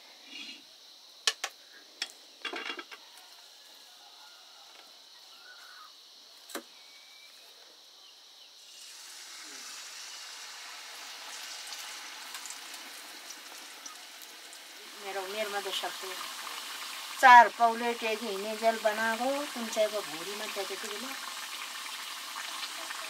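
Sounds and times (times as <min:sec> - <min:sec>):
batter sizzling in hot oil: 0:08.5 - 0:23.0.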